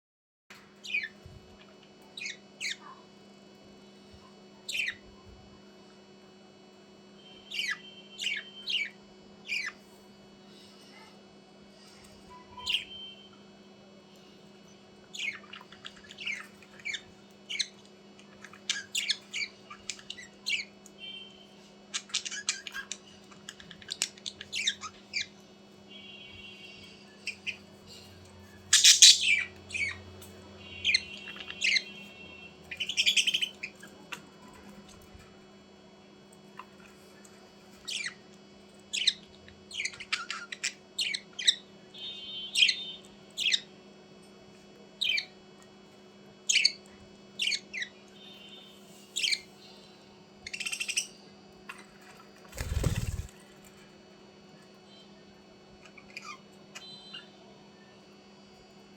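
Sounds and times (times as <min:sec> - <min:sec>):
low steady hum: 0:00.5 - 0:58.9
budgerigars chirping and squawking: 0:00.8 - 0:01.1, 0:04.7 - 0:05.0, 0:07.5 - 0:09.8, 0:15.1 - 0:17.7, 0:18.3 - 0:20.7, 0:21.9 - 0:25.3, 0:28.7 - 0:30.0, 0:30.7 - 0:33.9, 0:37.8 - 0:38.2, 0:38.9 - 0:41.6, 0:42.5 - 0:43.7, 0:47.4 - 0:47.9, 0:49.1 - 0:49.6, 0:50.5 - 0:51.8, 0:52.6 - 0:53.3, 0:55.8 - 0:57.3.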